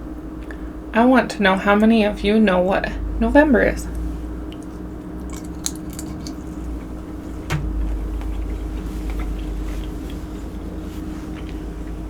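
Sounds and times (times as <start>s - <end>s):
steady low hum: 0.0s - 12.0s
clicks of seafood being eaten: 4.5s - 10.2s.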